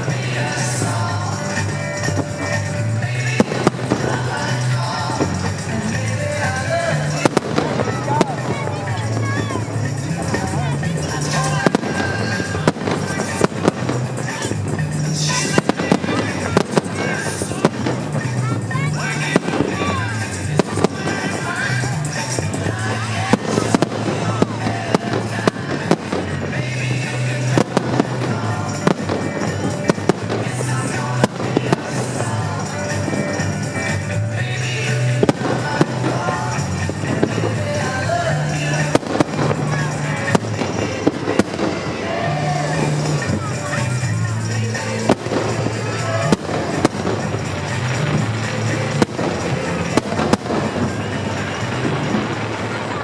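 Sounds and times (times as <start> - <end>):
fireworks bangs: 0.0 - 53.0
music playing: 0.0 - 53.0.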